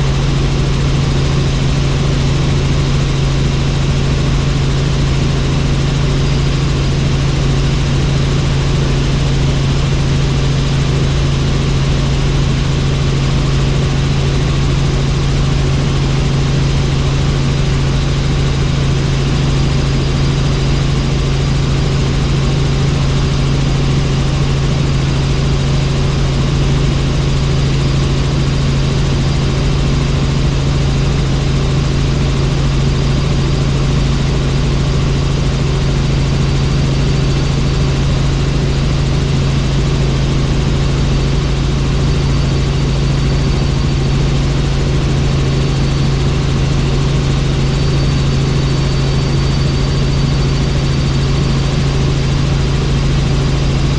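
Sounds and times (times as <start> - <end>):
helicopter rotor and engine drone: 0.0 - 53.9.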